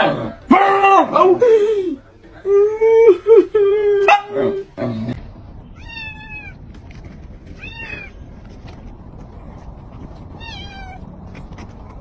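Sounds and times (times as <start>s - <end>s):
cat meowing: 5.8s - 6.6s, 7.6s - 8.2s, 10.4s - 11.0s.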